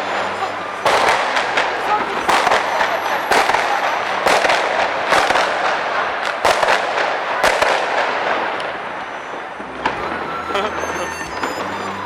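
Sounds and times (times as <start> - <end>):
firecrackers crackling: 0.0 - 12.0
loud firecracker bangs: 0.0 - 12.0.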